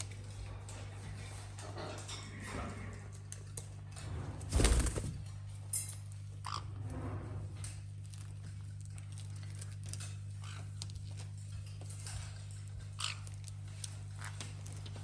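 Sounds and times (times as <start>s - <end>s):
parrots chewing toys: 7.5s - 15.0s.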